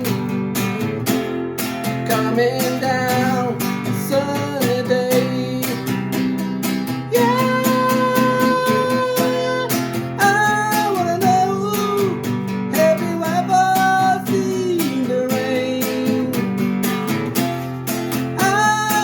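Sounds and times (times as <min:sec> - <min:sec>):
strummed acoustic guitar: 0:00.0 - 0:19.0.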